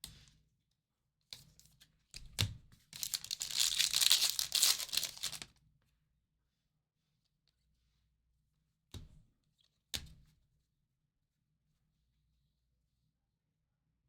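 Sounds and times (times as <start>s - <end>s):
wrapper being torn open: 3.0s - 5.5s.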